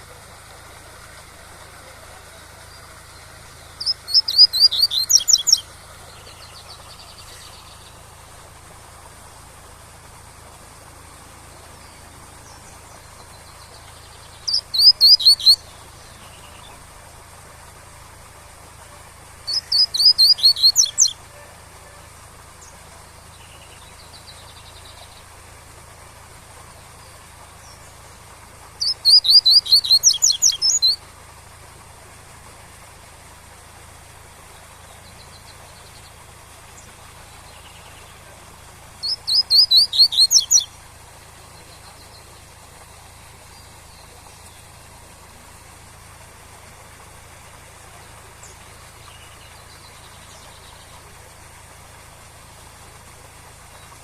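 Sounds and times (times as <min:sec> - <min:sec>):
waterfall hiss: 0:00.0 - 0:54.0
bird singing sharp high notes: 0:03.8 - 0:05.6, 0:14.4 - 0:15.6, 0:19.5 - 0:21.2, 0:28.8 - 0:31.0, 0:39.0 - 0:40.7.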